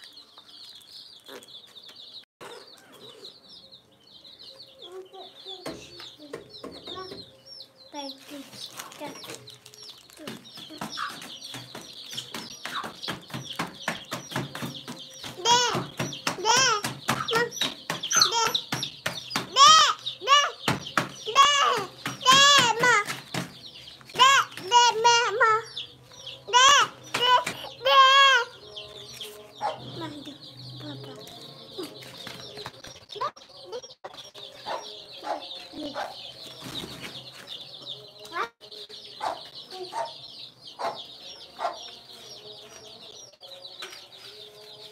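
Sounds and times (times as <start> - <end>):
chicks peeping: 0.0 - 44.9
chickens clucking: 8.0 - 37.5, 39.1 - 44.6.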